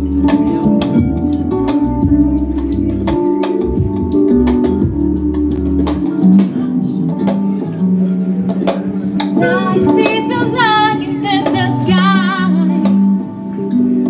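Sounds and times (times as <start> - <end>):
strummed guitar: 0.0 - 14.0
woman singing wordless phrase: 9.4 - 12.9.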